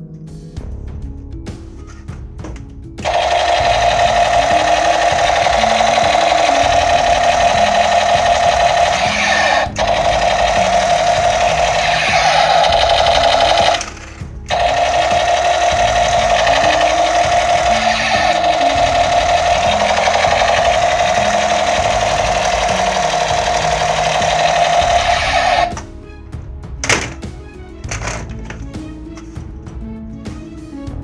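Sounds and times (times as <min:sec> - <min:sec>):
toy rifle mechanical buzz: 0:03.0 - 0:25.8.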